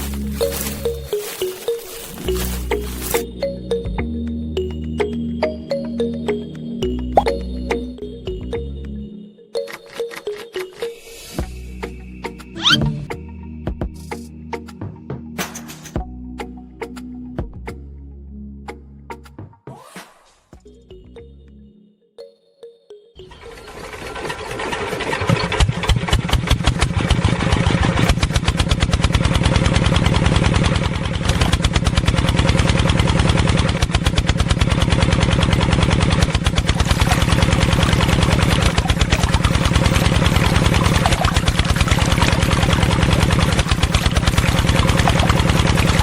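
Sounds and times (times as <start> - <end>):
engine chugging: 0.0 - 3.8, 23.2 - 46.0.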